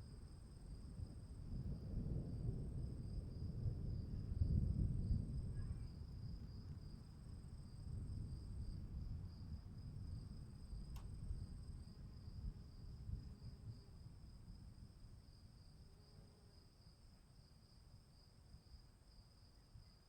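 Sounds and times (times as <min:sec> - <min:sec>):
crickets chirping: 0:00.0 - 0:20.0
faint higher cricket trill: 0:00.0 - 0:20.0
faint click: 0:10.9 - 0:11.2.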